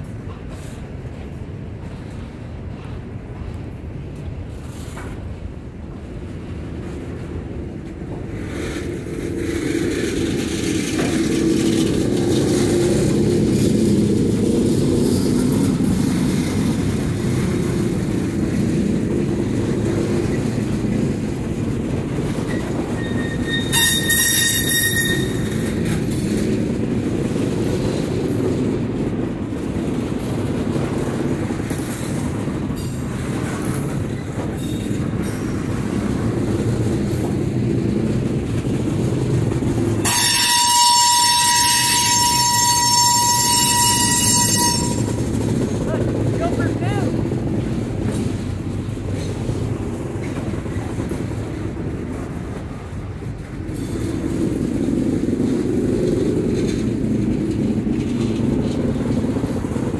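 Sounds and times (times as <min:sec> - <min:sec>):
train wheels rumbling on rail: 0:00.0 - 0:59.9
high-pitched wheel squeal: 0:22.5 - 0:25.8, 0:40.0 - 0:45.4.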